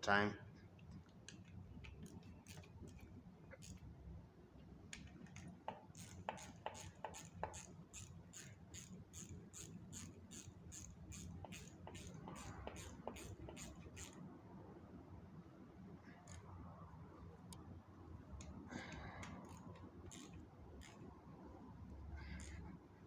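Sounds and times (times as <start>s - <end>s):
ratchet wrench clicking: 1.8s - 3.9s, 5.0s - 14.2s, 18.9s - 21.1s, 22.2s - 22.7s.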